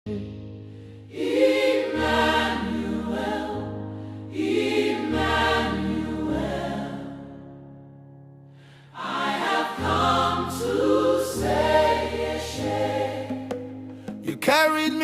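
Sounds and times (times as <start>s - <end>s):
choir singing held chords: 1.0s - 7.6s, 8.9s - 14.7s.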